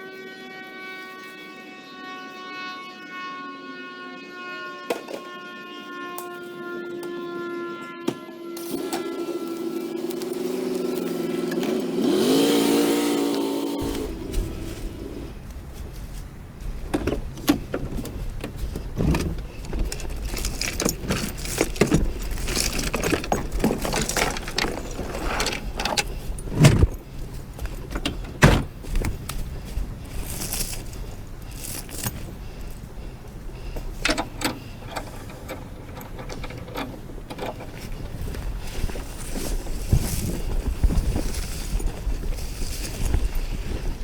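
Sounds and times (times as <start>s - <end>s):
low steady rumble: 13.8s - 44.0s
steel chain clinking and rattling: 17.3s - 44.0s.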